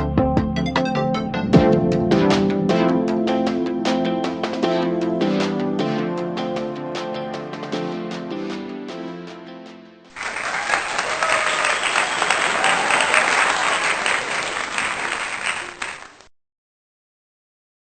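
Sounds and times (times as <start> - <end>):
crowd clapping: 10.1 - 16.3
faint voices: 10.2 - 16.2.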